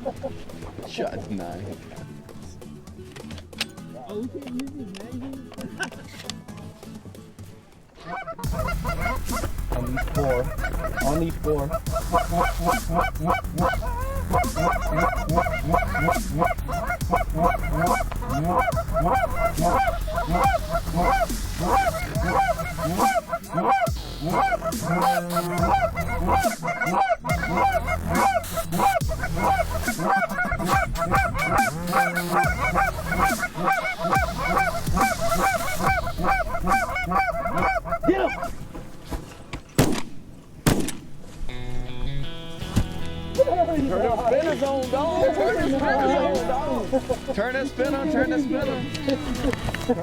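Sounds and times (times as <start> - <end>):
flock of geese honking: 8.0 - 38.9.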